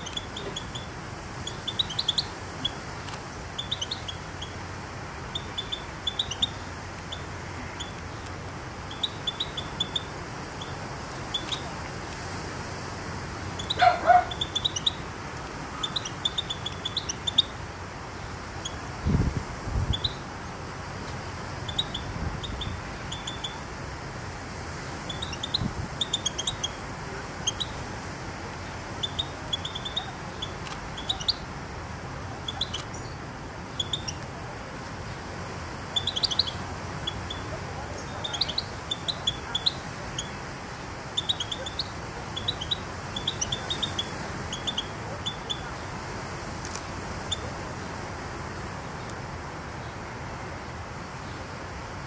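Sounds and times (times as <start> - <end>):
small birds chirping: 0.0 - 11.9, 13.4 - 18.9, 19.8 - 20.6, 21.6 - 23.7, 24.9 - 27.8, 28.6 - 31.5, 32.2 - 34.4, 35.8 - 45.9, 46.6 - 47.5
steady hiss: 0.0 - 52.0.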